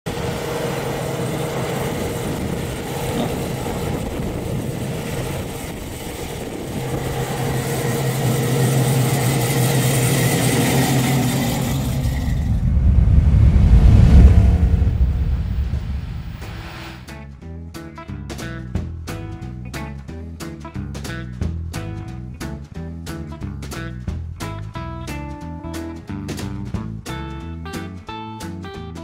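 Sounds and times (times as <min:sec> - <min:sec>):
car engine running: 0:00.1 - 0:17.1
deep engine rumble: 0:00.1 - 0:17.1.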